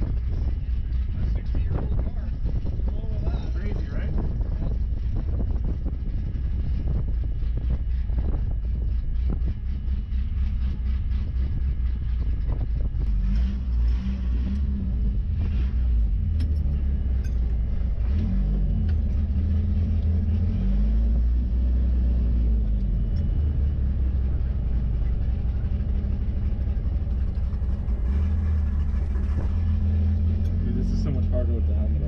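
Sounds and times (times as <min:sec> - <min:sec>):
car engine rumbling at low revs: 0:00.0 - 0:32.0.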